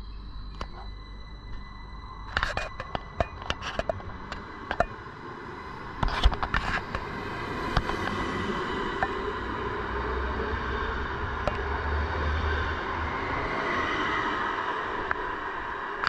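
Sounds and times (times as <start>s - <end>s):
train rolling noise: 2.2s - 16.0s
sharp clicks and knocks: 2.3s - 5.0s.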